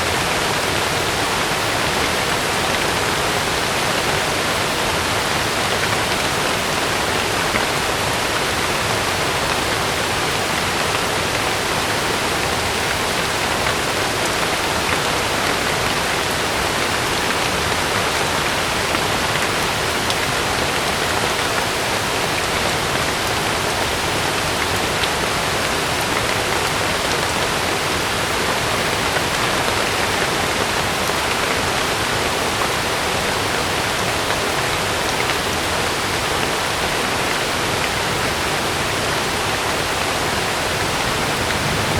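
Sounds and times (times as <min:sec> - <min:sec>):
heavy rain on a tent: 0:00.0 - 0:41.9.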